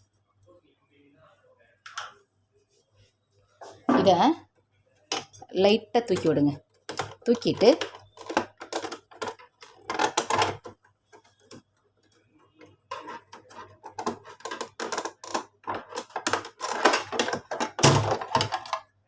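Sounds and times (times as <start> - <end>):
plastic cover clicking and rattling: 6.1 - 19.0.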